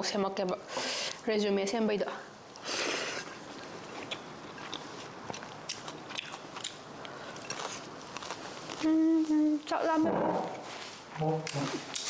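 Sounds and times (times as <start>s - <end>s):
person chewing crunchy food: 3.2s - 8.8s.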